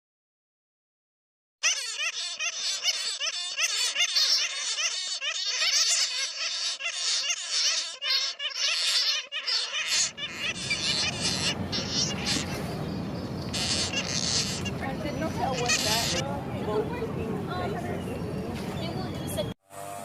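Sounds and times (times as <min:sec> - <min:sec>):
many birds chirping: 0:01.6 - 0:19.6
low rumbling noise: 0:10.1 - 0:19.6.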